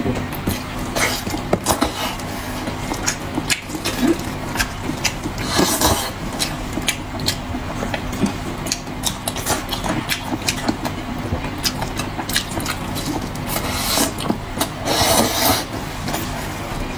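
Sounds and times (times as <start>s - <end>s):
steady low hum: 0.0s - 16.9s
wet chewing and lip-smacking: 0.4s - 16.2s
slurping or tearing: 0.9s - 6.6s, 12.3s - 16.3s.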